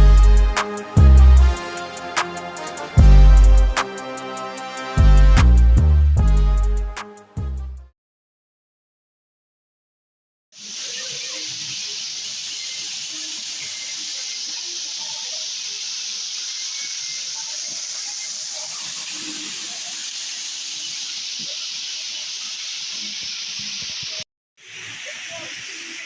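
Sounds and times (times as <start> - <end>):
waterfall rushing: 10.6 - 26.0.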